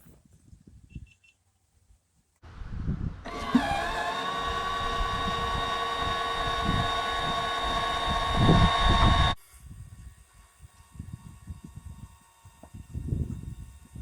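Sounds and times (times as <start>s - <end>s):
low rumble: 2.4s - 3.2s, 4.7s - 9.4s
electric actuator motor whining: 3.3s - 9.4s.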